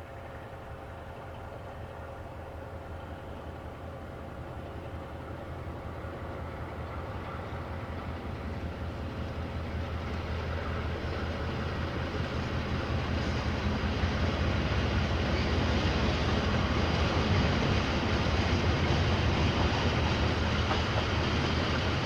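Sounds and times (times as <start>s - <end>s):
diesel locomotive engine hum: 0.0s - 22.0s.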